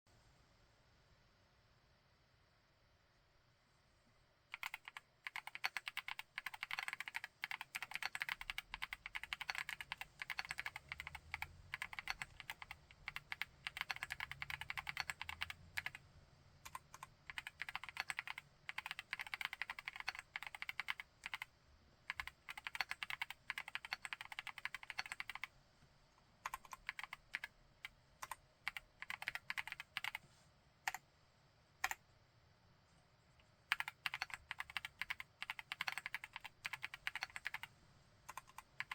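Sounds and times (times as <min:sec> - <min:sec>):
mechanical keyboard typing: 0:04.5 - 0:16.0, 0:16.6 - 0:21.5, 0:22.1 - 0:25.5, 0:26.4 - 0:30.2, 0:31.8 - 0:32.0, 0:33.7 - 0:37.7, 0:38.3 - 0:38.9.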